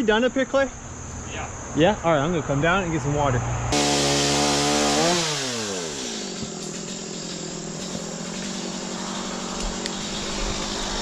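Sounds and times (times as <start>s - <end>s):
chainsaw engine running: 3.7s - 11.0s.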